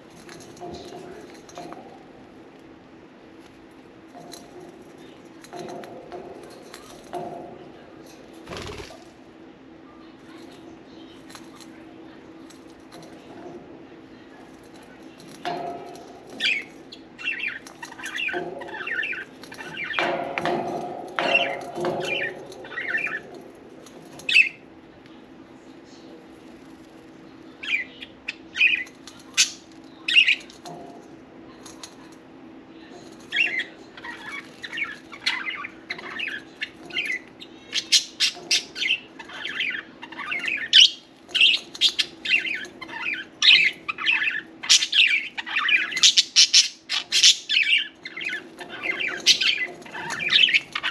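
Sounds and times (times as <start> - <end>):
budgerigars chirping and squawking: 33.3 - 50.9.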